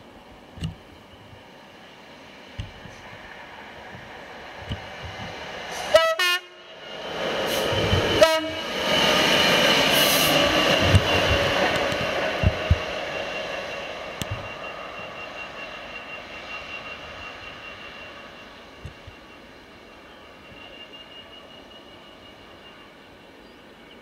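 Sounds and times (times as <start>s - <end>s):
train wheels: 0.0s - 23.1s
diesel locomotive engine passing: 0.0s - 24.0s
locomotive horn blasts: 5.9s - 6.6s, 8.2s - 8.7s.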